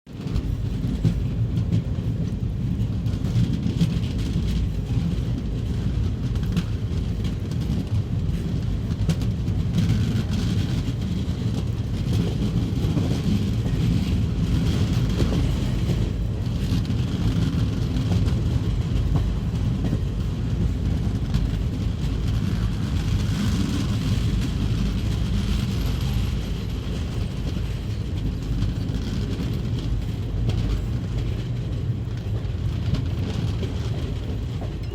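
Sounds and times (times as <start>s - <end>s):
train low rumble: 0.1s - 34.9s
wheels clicking on rails: 0.1s - 34.9s.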